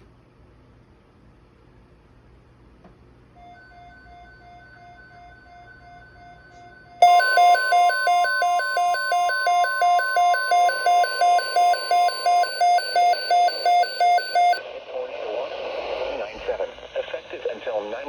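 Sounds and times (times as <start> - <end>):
steady warning alarm tone: 3.4 - 14.6
pulsing electronic beeps: 7.0 - 14.6.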